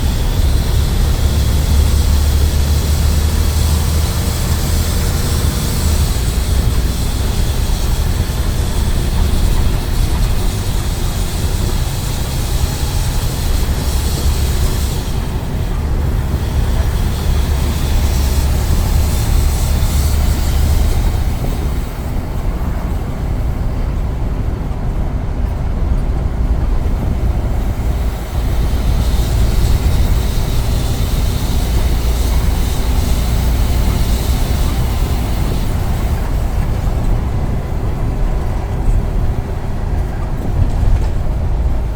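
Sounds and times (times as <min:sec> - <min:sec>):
high hiss: 0:00.0 - 0:22.4, 0:27.5 - 0:37.1
bus diesel engine rumble: 0:00.0 - 0:41.9
road noise: 0:00.0 - 0:41.9.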